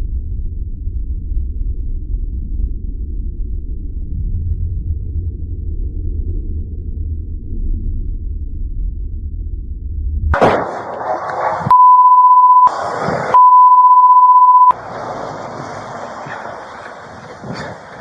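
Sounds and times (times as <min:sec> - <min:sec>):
censor bleeps: 0:11.7 - 0:12.7, 0:13.4 - 0:14.8.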